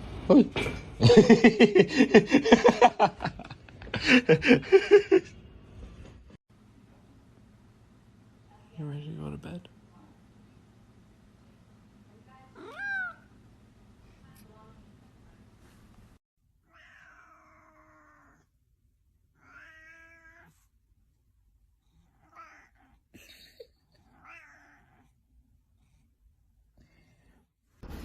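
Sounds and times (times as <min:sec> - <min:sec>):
cat meowing: 0:12.6 - 0:13.3, 0:16.6 - 0:18.5, 0:19.4 - 0:20.7, 0:22.2 - 0:22.9, 0:24.1 - 0:25.0.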